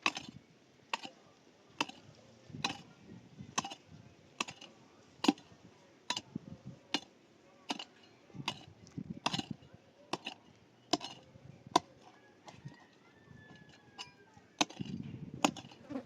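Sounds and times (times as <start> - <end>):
hand tool striking hard surface: 0.0 - 1.1, 2.6 - 2.9, 3.6 - 3.8, 4.4 - 5.5, 7.7 - 11.2, 11.8 - 12.8, 13.5 - 15.8.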